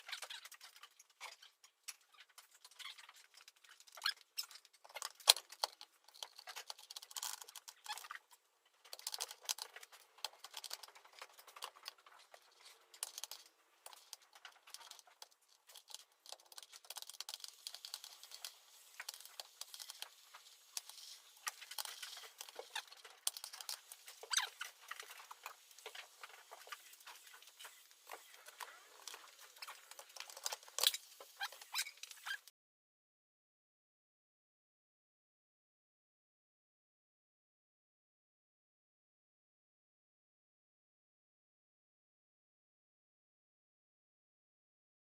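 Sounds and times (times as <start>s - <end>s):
small metal parts clicking: 8.8s - 32.5s.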